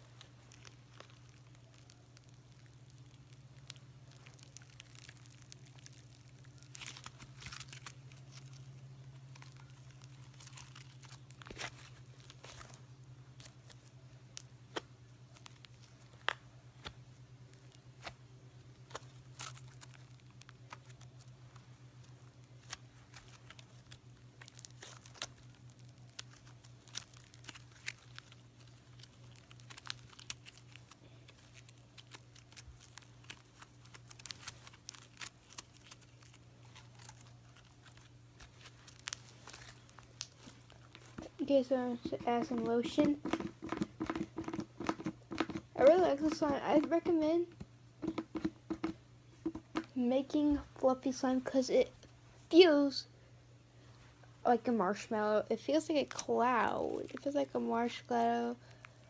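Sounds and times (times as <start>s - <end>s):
low electrical hum: 0.0s - 59.0s
slime sticky pops and crackles: 0.2s - 12.8s, 22.1s - 50.0s.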